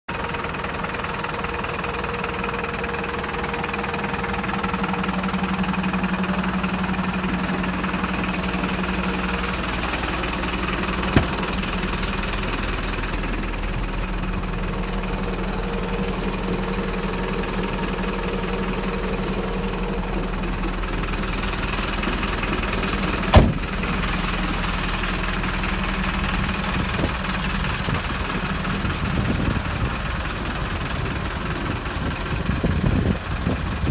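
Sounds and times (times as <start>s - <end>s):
loud knock: 11.1s - 11.5s.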